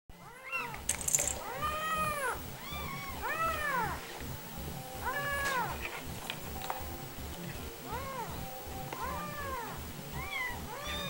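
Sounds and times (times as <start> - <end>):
cat meowing: 9.0 - 11.0.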